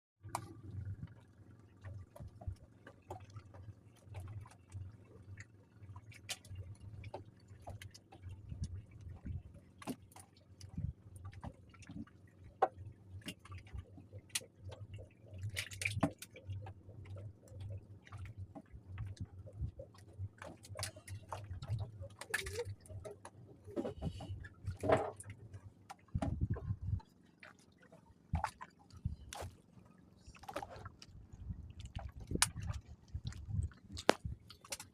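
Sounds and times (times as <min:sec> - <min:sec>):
water splashing and sloshing: 0:00.2 - 0:34.9.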